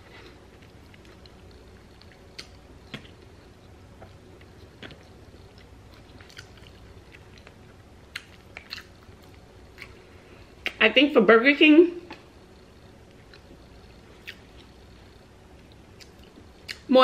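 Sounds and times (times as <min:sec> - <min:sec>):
chewing food: 0:00.2 - 0:10.1, 0:13.0 - 0:16.9
wet mouth clicks and smacks: 0:02.0 - 0:03.1, 0:07.4 - 0:09.0.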